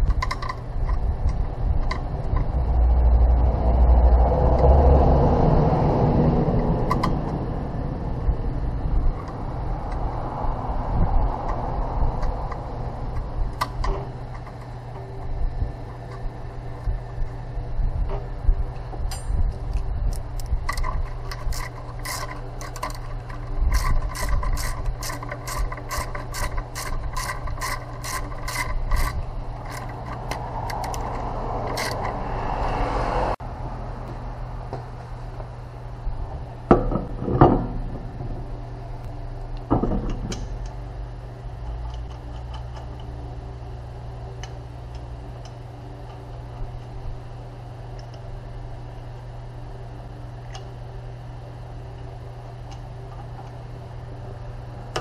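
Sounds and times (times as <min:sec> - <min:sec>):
low hum: 0:00.0 - 0:55.0
sharp mechanical clicking: 0:19.1 - 0:32.2.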